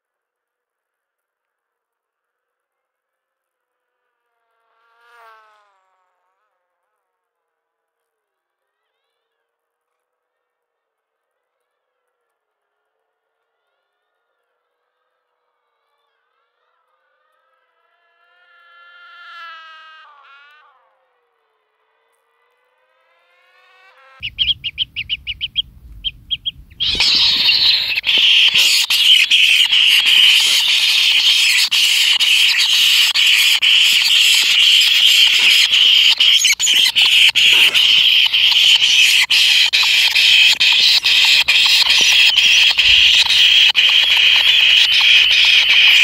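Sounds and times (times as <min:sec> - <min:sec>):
nestling chirps: 0:24.2 - 0:46.0
nestlings churring begging calls: 0:24.2 - 0:46.0.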